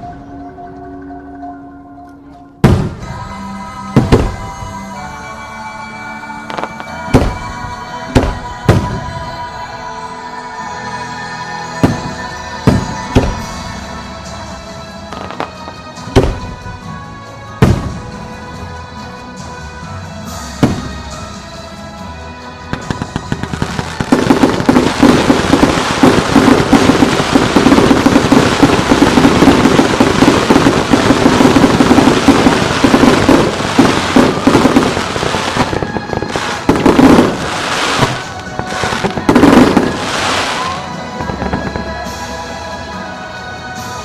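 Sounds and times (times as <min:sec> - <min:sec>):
background music: 0:00.0 - 0:44.0
fireworks banging and crackling: 0:02.6 - 0:04.9, 0:06.5 - 0:09.4, 0:11.7 - 0:18.6, 0:20.2 - 0:21.6, 0:22.6 - 0:42.6.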